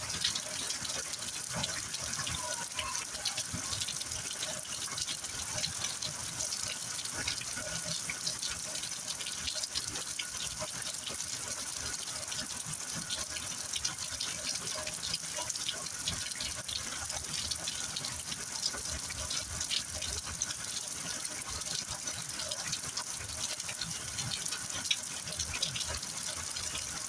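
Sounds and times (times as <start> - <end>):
heavy rain pattering: 0.1 - 8.9.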